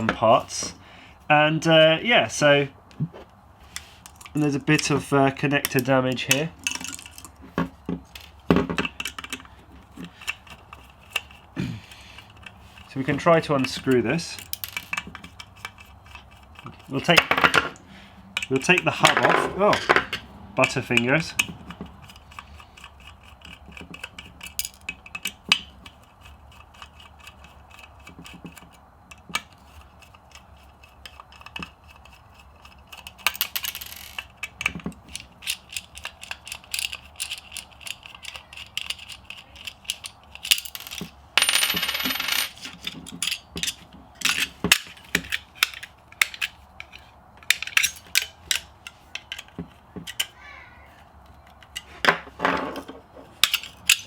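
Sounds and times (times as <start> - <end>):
small metal parts clinking: 3.7 - 50.4, 51.2 - 54.0.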